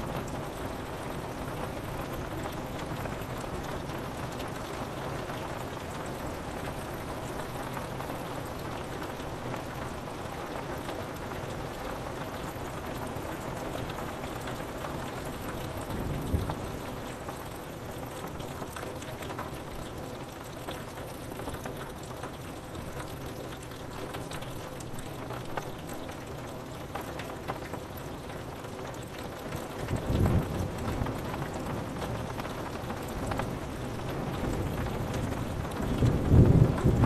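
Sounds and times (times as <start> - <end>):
rain on window glass: 0.0 - 37.0
rumble of thunder: 15.3 - 17.4, 29.8 - 37.0.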